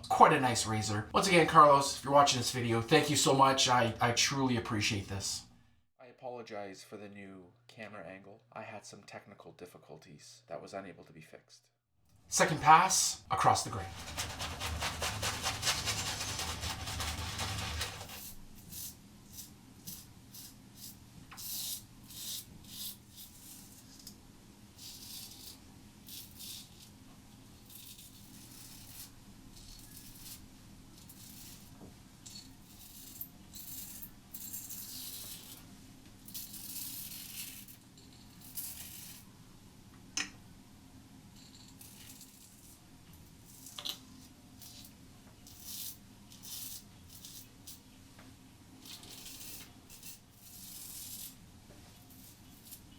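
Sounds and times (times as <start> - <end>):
razor scraping stubble: 13.9 - 18.8.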